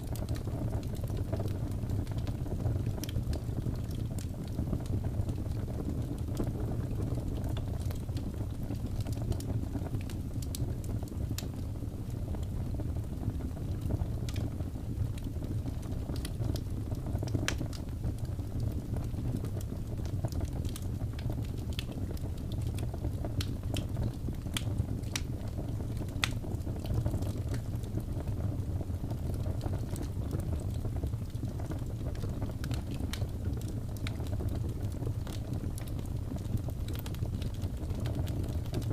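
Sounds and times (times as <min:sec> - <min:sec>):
fire pops and snaps: 0:00.0 - 0:38.9
wood fire crackling: 0:00.0 - 0:38.9.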